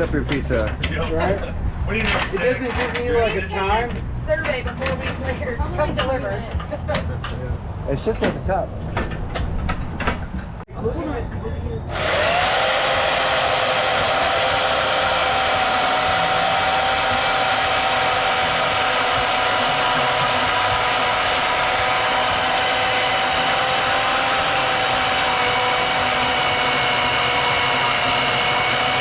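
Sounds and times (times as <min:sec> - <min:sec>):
bandsaw cutting metal tube: 0:11.9 - 0:29.0.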